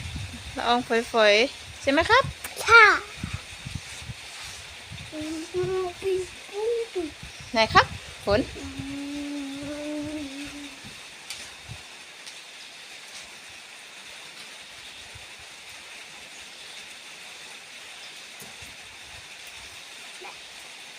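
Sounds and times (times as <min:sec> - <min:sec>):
light rain falling: 0:00.0 - 0:20.9
raindrops ticking: 0:05.1 - 0:20.4.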